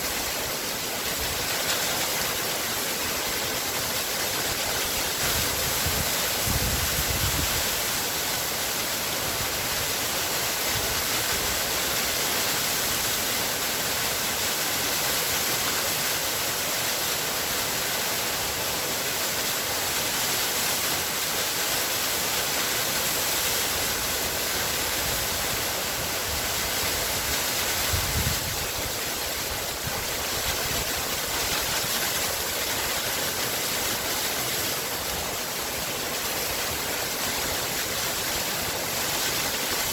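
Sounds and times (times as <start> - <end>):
waterfall rushing and splashing: 0.0 - 39.9.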